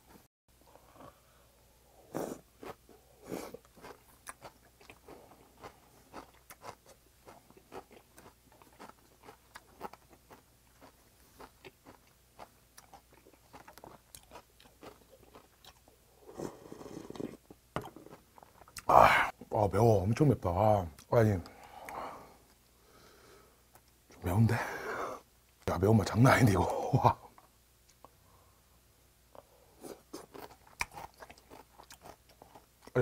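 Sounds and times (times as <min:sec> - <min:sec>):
wet chewing with crunches: 0:02.3 - 0:15.9, 0:29.4 - 0:33.0.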